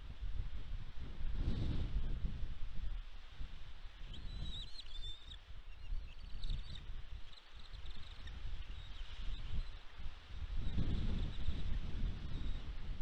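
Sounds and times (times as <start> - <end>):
faint high bird chirps: 4.1 - 9.8
wind buffeting microphone: 8.2 - 13.0.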